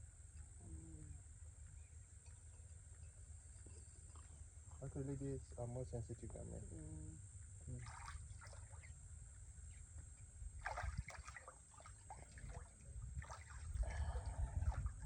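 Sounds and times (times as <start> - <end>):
water splashing and sloshing: 7.7 - 9.0, 9.7 - 15.0
steady low rumble: 12.0 - 15.0.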